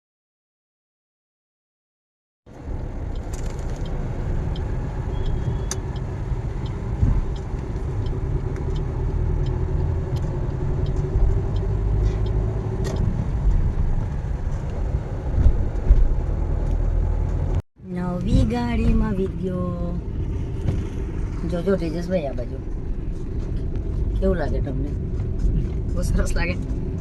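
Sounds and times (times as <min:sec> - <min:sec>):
car engine and road rumble: 0:02.5 - 0:27.0
faint clicks and ticks: 0:03.1 - 0:13.6.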